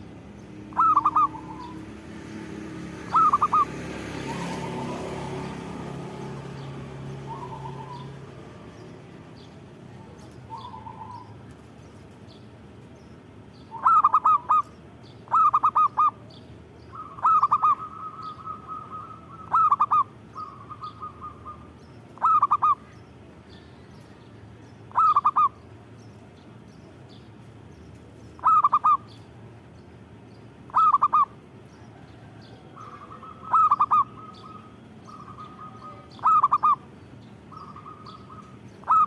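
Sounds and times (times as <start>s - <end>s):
dove cooing: 0.7s - 5.8s, 7.1s - 8.4s, 9.9s - 11.4s, 13.7s - 14.7s, 15.3s - 16.2s, 16.9s - 22.9s, 24.9s - 25.6s, 28.4s - 29.1s, 30.7s - 36.9s, 37.5s - 39.0s
faint high bird chirps: 28.2s - 29.3s, 30.7s - 39.0s.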